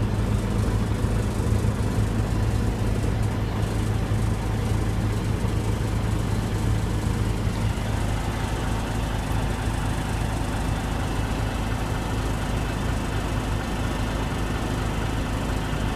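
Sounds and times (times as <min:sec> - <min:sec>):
diesel engine idling: 0:00.0 - 0:15.9.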